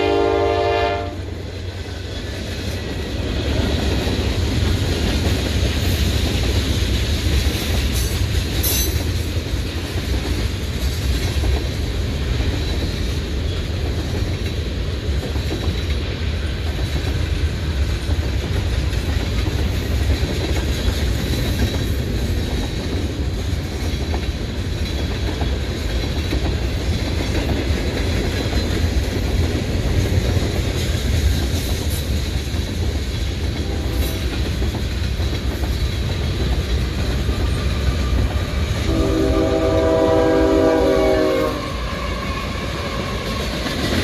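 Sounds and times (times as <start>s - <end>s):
diesel locomotive horn: 0.0s - 1.4s, 33.6s - 34.4s, 37.4s - 43.6s
freight cars rumbling and clacking: 1.4s - 38.9s.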